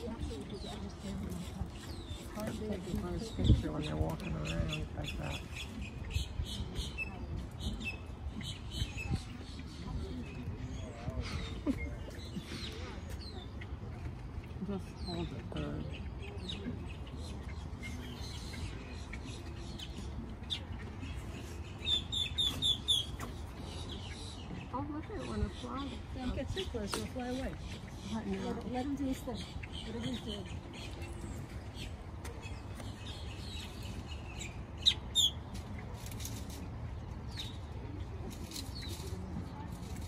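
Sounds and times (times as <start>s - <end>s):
loud sharp bird calls: 14.9s - 35.6s.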